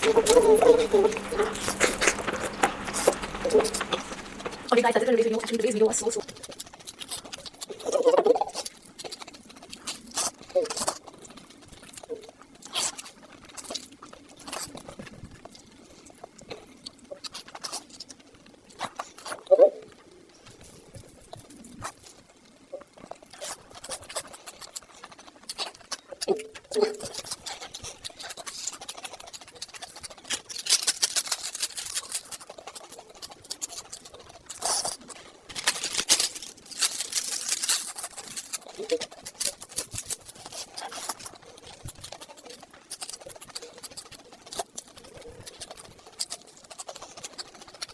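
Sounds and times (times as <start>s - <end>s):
chewing with wet smacks: 0.0s - 47.9s.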